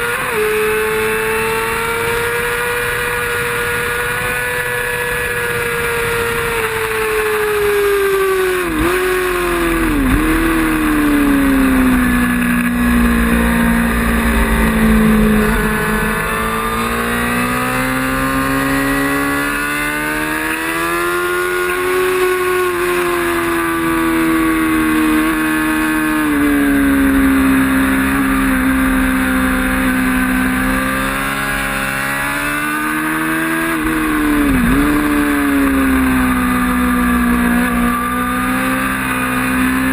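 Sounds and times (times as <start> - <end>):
racing motorcycle engine: 0.0 - 39.9
wind rushing: 11.0 - 18.8.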